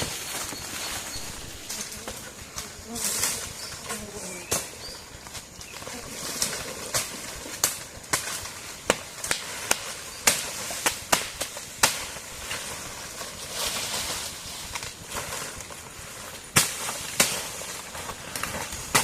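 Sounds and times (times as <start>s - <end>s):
sharp cracks or knocks: 6.4s - 12.8s, 16.5s - 19.0s.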